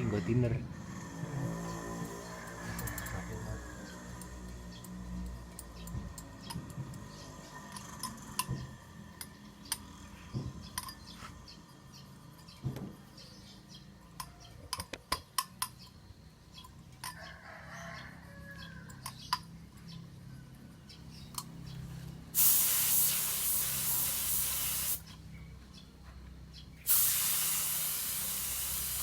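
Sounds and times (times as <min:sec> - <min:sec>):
metallic clicks of tools handled: 0:02.5 - 0:03.2.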